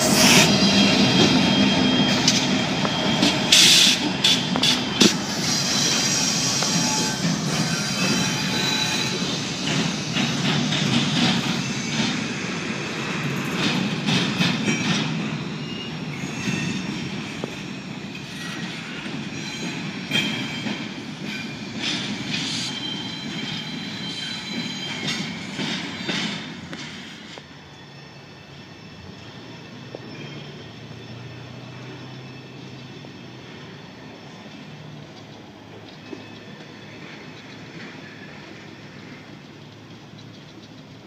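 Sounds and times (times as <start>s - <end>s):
thin wheel squeal: 0.0s - 10.0s
steel wheels rumbling on rail: 0.0s - 41.0s.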